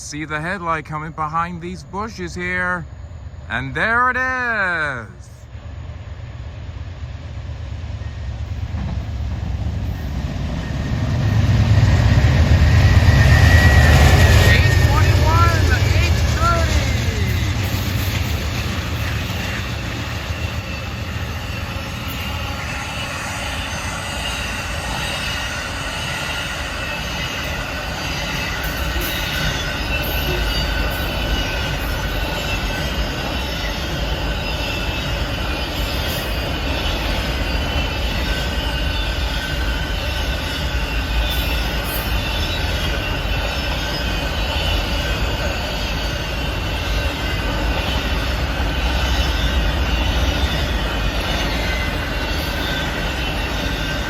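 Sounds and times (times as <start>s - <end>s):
train wheels rumbling on rail: 5.5s - 54.0s
high-pitched wheel squeal: 20.5s - 54.0s.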